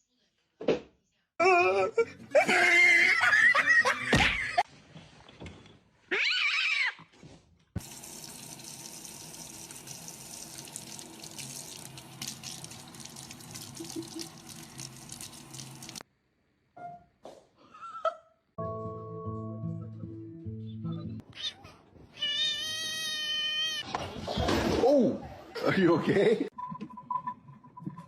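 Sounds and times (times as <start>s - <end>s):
running water splashing: 7.8s - 16.0s.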